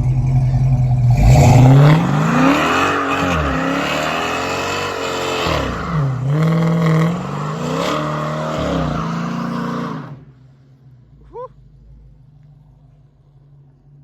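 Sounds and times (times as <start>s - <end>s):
car engine accelerating hard: 0.0s - 10.5s.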